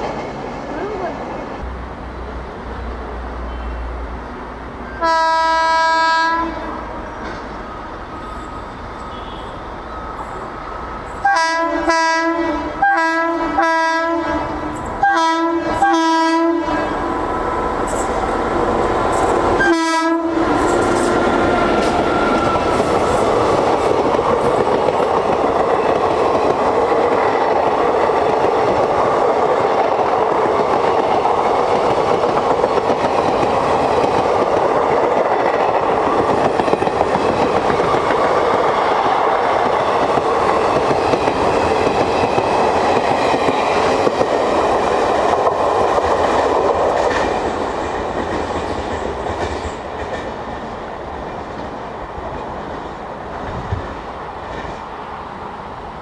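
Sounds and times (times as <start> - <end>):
train wheels rumbling on rails: 0.0 - 56.0
clickety-clack over rail joints: 6.7 - 7.6, 20.4 - 55.0.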